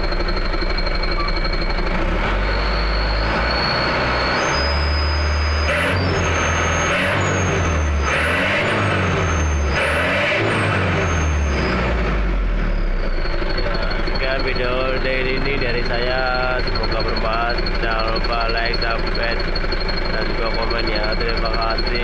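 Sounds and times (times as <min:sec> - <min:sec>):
truck engine revving: 0:00.0 - 0:22.0
high whistle: 0:00.5 - 0:12.0.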